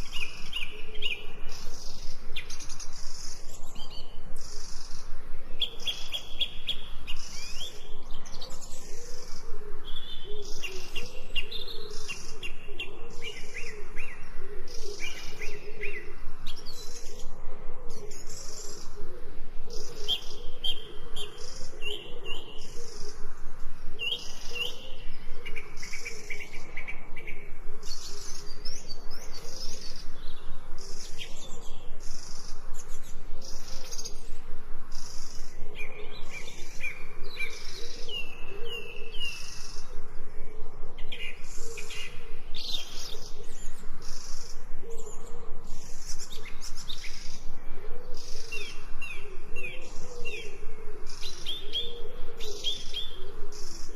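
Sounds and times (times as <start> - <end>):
small birds chirping: 0.0 - 53.9.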